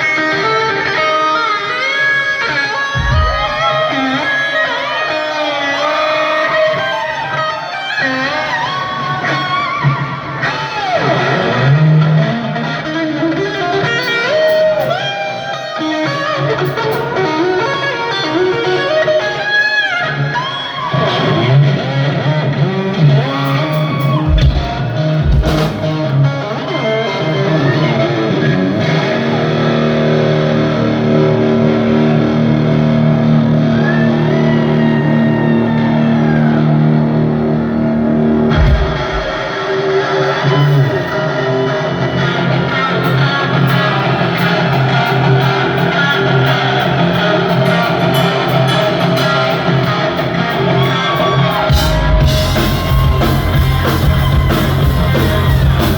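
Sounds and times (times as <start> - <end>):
distorted electric guitar: 0.0 - 55.9
steady bass line: 3.0 - 4.4, 24.1 - 26.1, 43.2 - 55.9.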